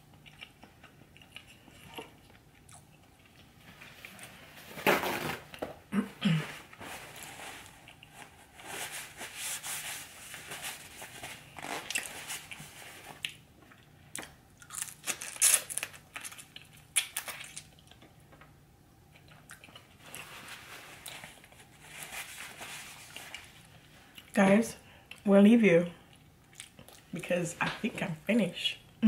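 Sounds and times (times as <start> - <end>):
person chewing food: 0.0 - 4.2, 7.0 - 8.6, 11.4 - 15.1, 16.1 - 18.3, 19.0 - 21.8, 26.1 - 27.1.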